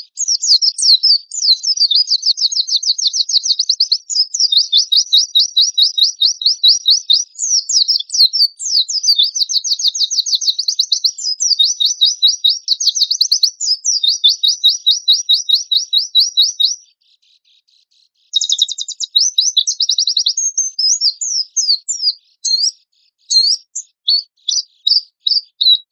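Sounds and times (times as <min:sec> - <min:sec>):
bird singing rapid high notes: 0:18.3 - 0:25.9.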